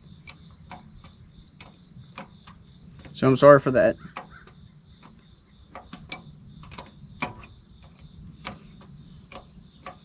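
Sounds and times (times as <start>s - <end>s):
insects chirring: 0.0s - 10.0s
light clicks and taps: 0.2s - 3.2s.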